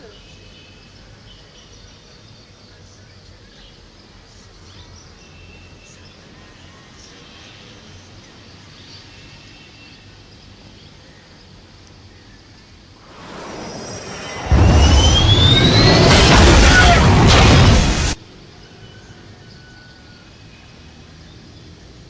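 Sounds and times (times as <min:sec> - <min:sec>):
low background rumble: 0:12.1 - 0:18.2.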